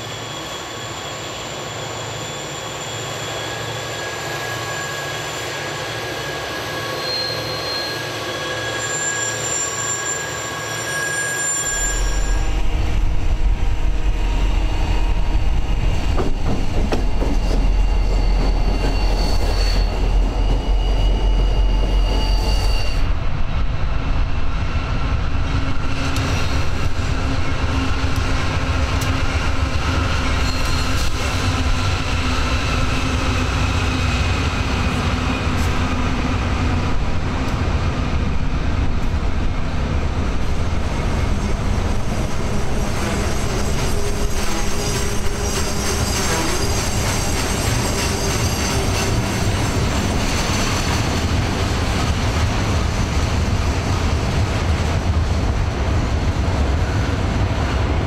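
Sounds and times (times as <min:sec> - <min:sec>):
diesel locomotive engines droning: 0:00.0 - 0:58.0
train wheels rolling over rails: 0:11.7 - 0:20.7.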